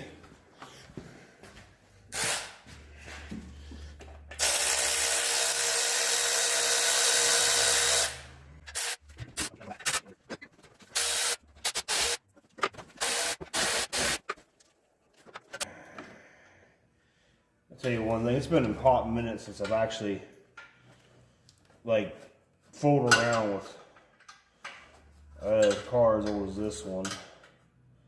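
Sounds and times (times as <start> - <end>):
cordless power tool spinning bolts: 2.1 - 2.6, 4.3 - 10.0, 10.9 - 12.2, 12.9 - 14.3.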